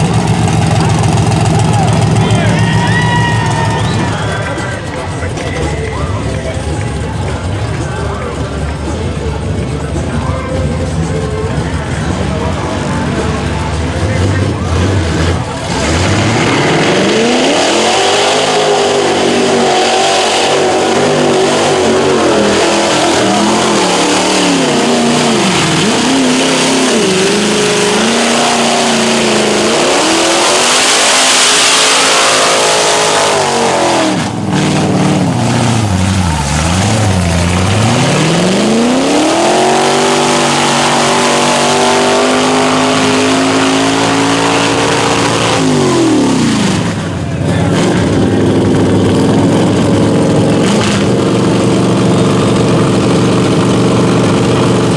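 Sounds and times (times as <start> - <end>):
truck engine revving: 0.0 - 54.9
loud rushing noise: 12.3 - 54.9.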